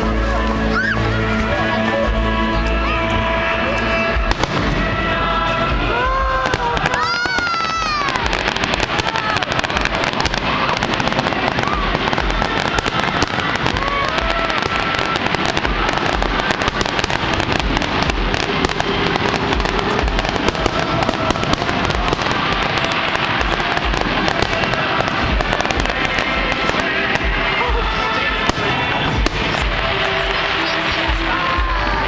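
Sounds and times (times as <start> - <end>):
fireworks booming: 0.0 - 32.0
fireworks crackling and popping: 0.0 - 32.0.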